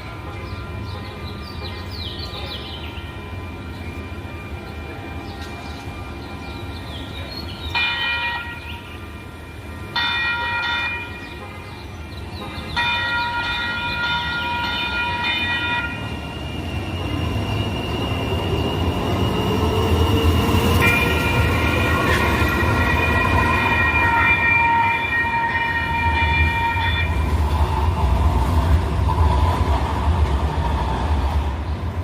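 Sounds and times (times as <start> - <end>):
train rumble: 0.0 - 32.0
train horn blasts: 20.8 - 27.6.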